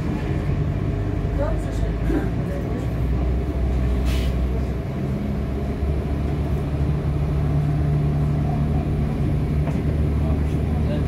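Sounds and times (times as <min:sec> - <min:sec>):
train engine and traction hum: 0:00.0 - 0:11.0.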